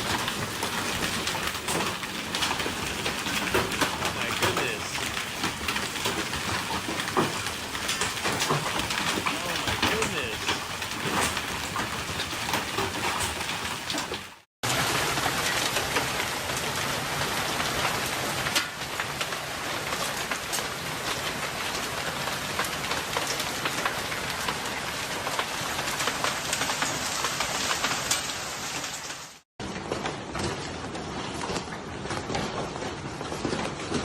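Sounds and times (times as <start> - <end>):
hailstone impacts: 0.0 - 14.3
hail and heavy rain pelting: 0.0 - 34.0.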